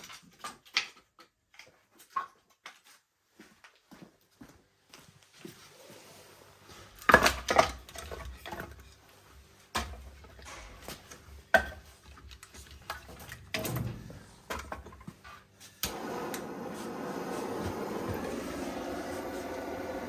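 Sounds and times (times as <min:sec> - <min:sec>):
wood fire crackling: 0:09.7 - 0:20.0.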